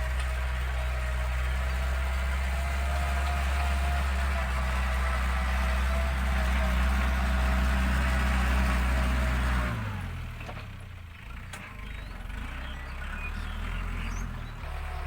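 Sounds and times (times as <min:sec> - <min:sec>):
diesel tractor engine running: 0:00.0 - 0:15.0.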